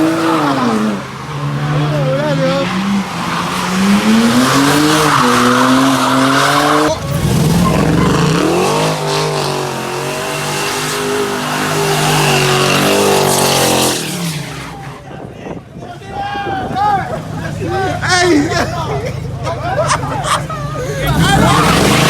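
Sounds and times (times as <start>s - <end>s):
car engine at high revs: 0.0s - 14.9s, 19.4s - 22.0s
tyres squealing: 0.0s - 15.1s.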